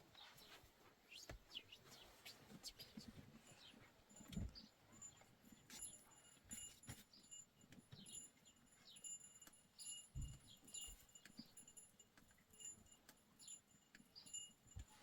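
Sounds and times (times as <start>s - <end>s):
small bells jingling: 3.4s - 15.0s.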